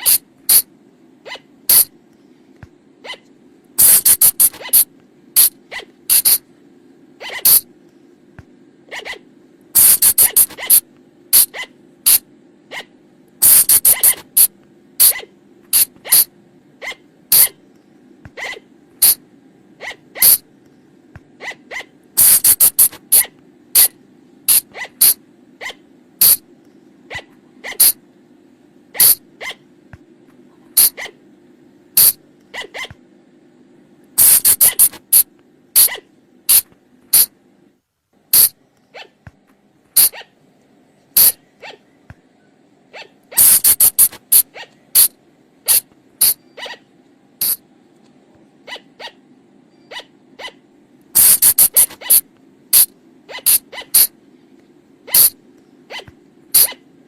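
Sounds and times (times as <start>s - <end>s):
colugo shrieking calls: 0.0s - 1.9s, 3.0s - 6.4s, 7.2s - 7.7s, 8.9s - 10.8s, 11.4s - 17.6s, 18.3s - 19.2s, 19.8s - 20.4s, 21.4s - 23.9s, 24.5s - 26.4s, 27.1s - 28.0s, 28.9s - 29.6s, 30.8s - 31.2s, 32.0s - 33.0s, 34.2s - 36.6s, 38.4s - 39.2s, 40.0s - 40.4s, 41.2s - 42.0s, 42.9s - 47.6s, 48.6s - 49.2s, 49.8s - 50.6s, 51.2s - 54.2s, 55.1s - 56.9s
faint low hum: 0.0s - 57.0s.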